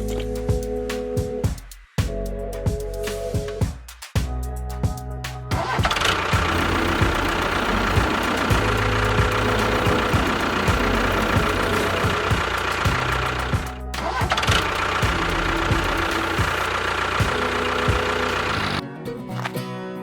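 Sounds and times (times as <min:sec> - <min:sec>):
background music: 0:00.0 - 0:20.0
small motor running: 0:06.0 - 0:18.8.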